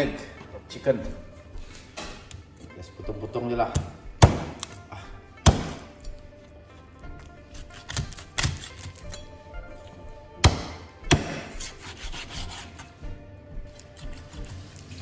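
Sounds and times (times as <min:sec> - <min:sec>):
knife chopping on wooden board: 0:03.7 - 0:04.8, 0:05.4 - 0:06.0, 0:07.6 - 0:09.1, 0:10.4 - 0:12.9
knife sawing through meat: 0:07.4 - 0:09.1, 0:11.1 - 0:13.0, 0:13.8 - 0:15.0.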